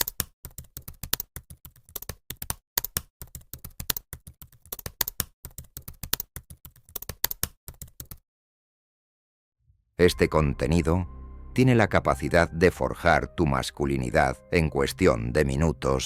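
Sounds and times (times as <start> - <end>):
keyboard typing clicks: 0.0 - 8.2.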